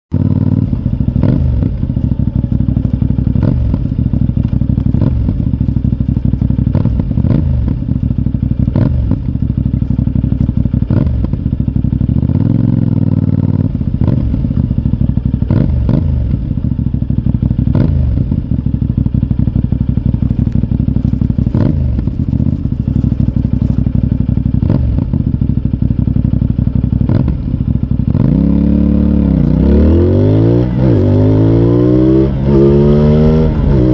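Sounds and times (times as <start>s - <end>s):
engine revving: 0.1s - 8.0s, 8.6s - 9.3s, 10.8s - 11.4s, 12.1s - 14.7s, 15.4s - 16.4s, 17.6s - 18.4s, 20.2s - 23.8s, 24.5s - 25.2s, 26.9s - 33.9s
motorcycle engine idling: 0.1s - 33.9s.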